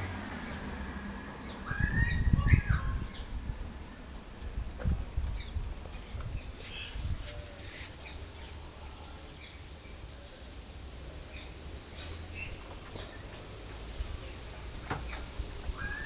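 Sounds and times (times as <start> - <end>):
wind rumble on microphone: 0.0 - 7.6, 12.3 - 16.0
birds chirping and calling: 1.4 - 3.5, 5.2 - 8.6, 15.0 - 16.0.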